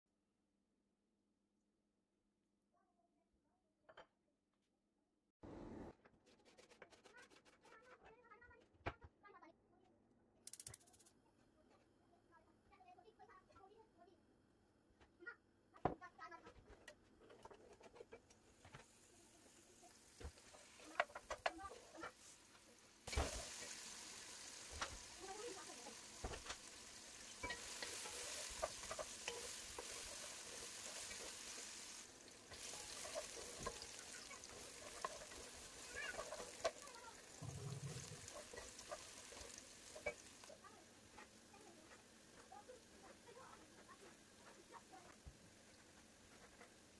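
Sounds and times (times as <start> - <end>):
wooden spatula scraping and clacking: 16.4 - 19.0, 20.2 - 23.8, 24.7 - 46.9
onions sizzling in hot oil: 17.9 - 46.9.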